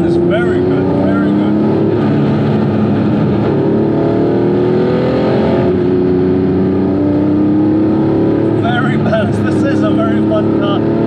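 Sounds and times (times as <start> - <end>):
car engine accelerating: 0.0 - 11.0
road and wind noise: 0.0 - 11.0.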